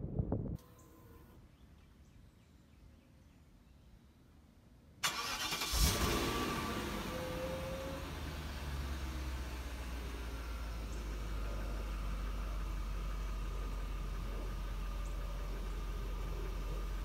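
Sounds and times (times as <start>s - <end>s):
car engine idling: 5.0s - 17.0s
faint steady whine: 8.0s - 17.0s.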